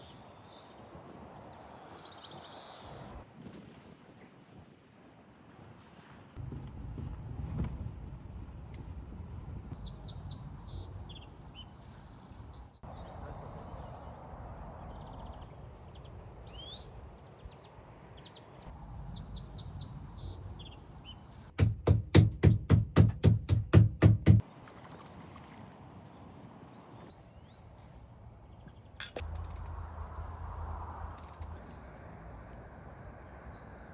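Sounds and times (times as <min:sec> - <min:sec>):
songbirds chirping: 0:09.7 - 0:21.6, 0:26.1 - 0:33.9
loud heavy beats: 0:21.6 - 0:24.4.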